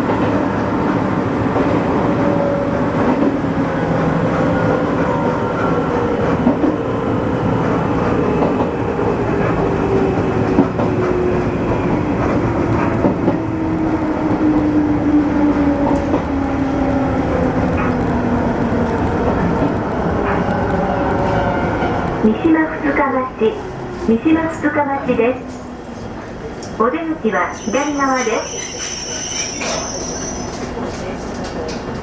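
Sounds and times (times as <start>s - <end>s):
train rumble: 0.0s - 32.0s
rail-joint clicks: 25.4s - 26.8s.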